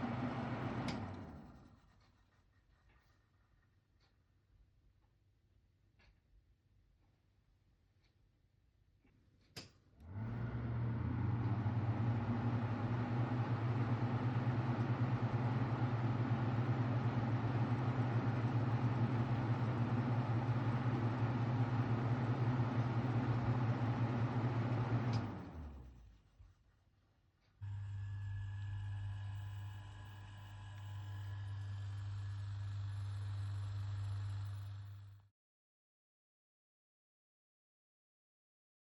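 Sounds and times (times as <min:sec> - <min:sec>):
exhaust fan running: 0:00.0 - 0:01.6, 0:10.0 - 0:26.0, 0:27.6 - 0:35.1.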